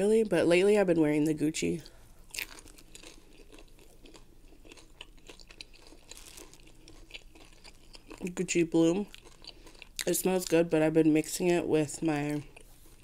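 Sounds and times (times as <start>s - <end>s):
person chewing crunchy food: 1.8s - 10.6s, 12.4s - 13.0s.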